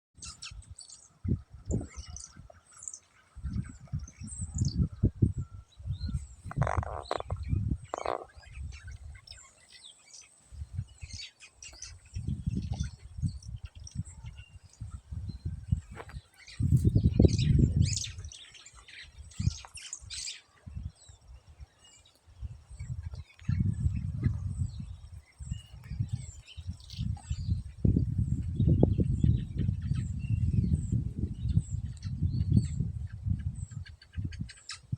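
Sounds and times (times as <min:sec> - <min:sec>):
small birds chirping: 0:00.2 - 0:34.9
low microphone rumble: 0:12.1 - 0:18.4, 0:22.4 - 0:34.3.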